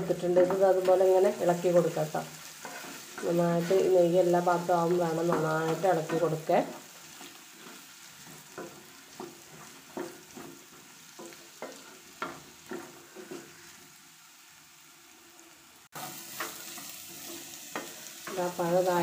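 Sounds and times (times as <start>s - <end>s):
frying sizzle in a pan: 0.0s - 19.0s
utensil scraping and knocking pan: 7.2s - 13.6s.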